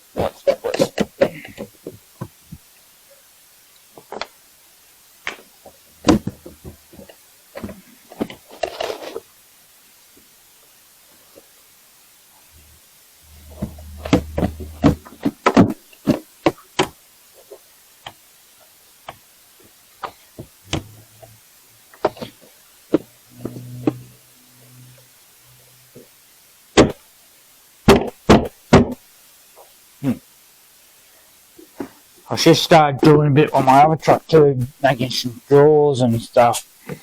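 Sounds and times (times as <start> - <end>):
short low hum: 12.5 - 15.8, 20.7 - 21.9, 22.9 - 26.0.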